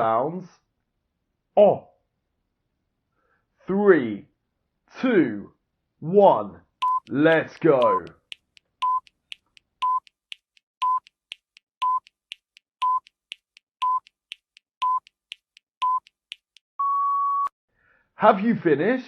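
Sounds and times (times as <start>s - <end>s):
timer beeps: 6.8s - 17.5s.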